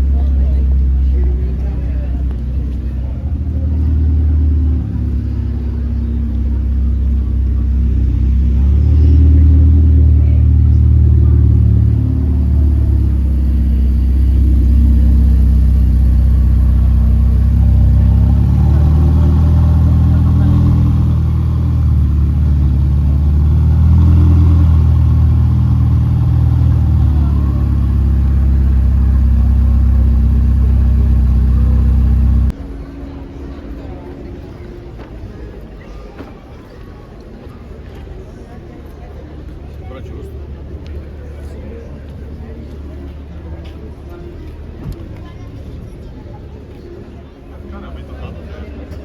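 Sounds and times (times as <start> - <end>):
car engine rumbling: 0.0 - 36.4.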